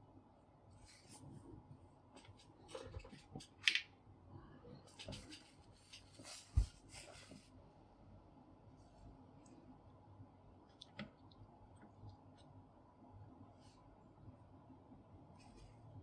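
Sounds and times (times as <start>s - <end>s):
small clicks and scrapes of parts: 2.1s - 3.9s, 4.9s - 6.5s.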